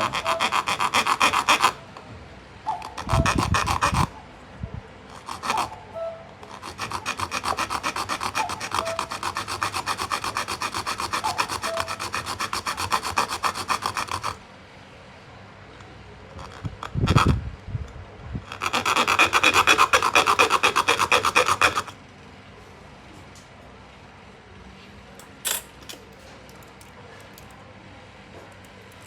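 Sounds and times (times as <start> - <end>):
hand saw cutting metal: 0.0 - 1.8, 2.9 - 4.1, 5.1 - 5.8, 6.4 - 14.4, 18.5 - 22.0.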